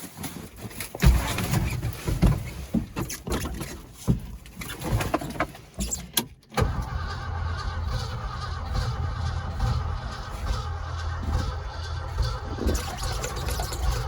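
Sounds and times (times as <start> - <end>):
starter cranking engine: 6.6 - 14.0.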